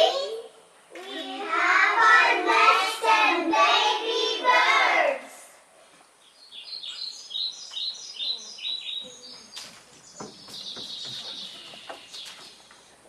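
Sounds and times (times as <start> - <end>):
small birds chirping: 6.2 - 13.0.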